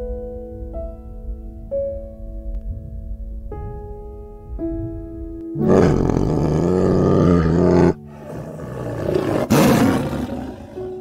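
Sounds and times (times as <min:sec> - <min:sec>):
tiger roaring: 0:05.6 - 0:11.0.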